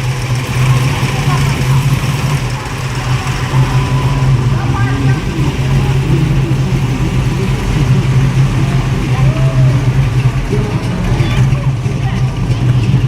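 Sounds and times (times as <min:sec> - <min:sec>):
engine idling: 0:00.0 - 0:13.0
faint crowd voices: 0:00.0 - 0:13.0.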